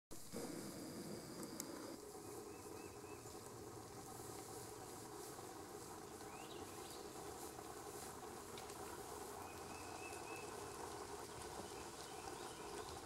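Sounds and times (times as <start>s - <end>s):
woodland ambience: 0.1s - 13.0s
distant bird chirps: 1.0s - 3.4s, 6.0s - 7.2s, 9.3s - 10.6s.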